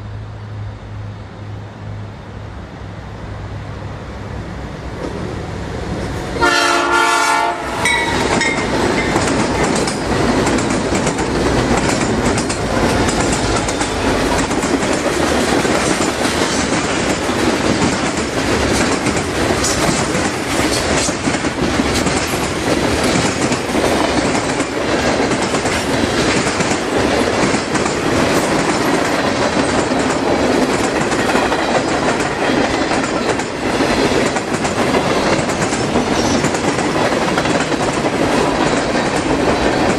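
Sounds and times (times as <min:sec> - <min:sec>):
train rumbling past: 0:00.0 - 0:39.9
train wheels clacking on rails: 0:06.1 - 0:39.9
freight train horn blast: 0:06.4 - 0:08.7.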